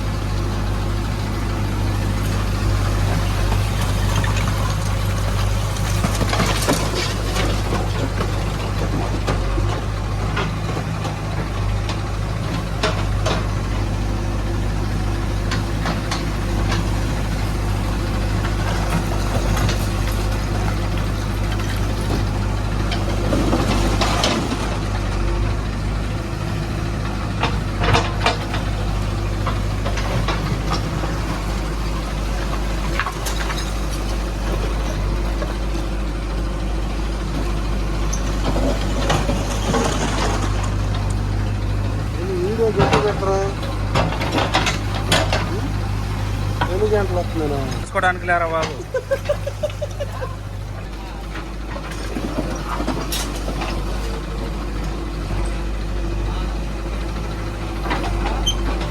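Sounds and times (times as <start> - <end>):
heavy diesel engine running: 0.0 - 58.9
sharp knocks and clatter: 42.6 - 45.7.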